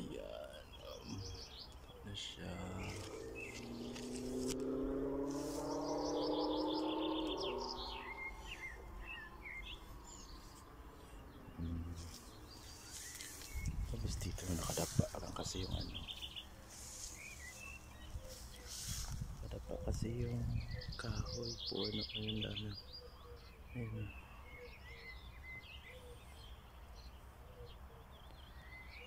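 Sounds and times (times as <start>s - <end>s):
small birds chirping: 0.0s - 29.0s
low droning hum: 2.5s - 20.6s.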